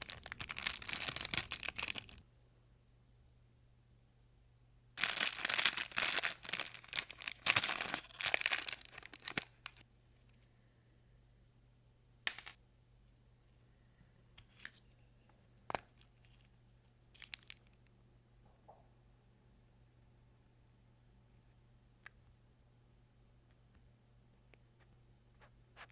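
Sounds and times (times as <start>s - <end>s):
packaging tearing and crinkling: 0.0s - 2.2s, 5.0s - 9.8s, 17.2s - 17.7s.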